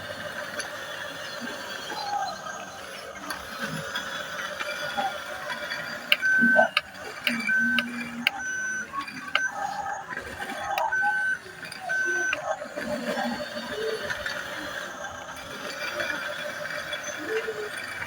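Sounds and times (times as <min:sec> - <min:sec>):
small geared motor whirring: 0:00.0 - 0:18.0
clicks: 0:03.1 - 0:18.0
short electronic beeps: 0:04.8 - 0:14.0.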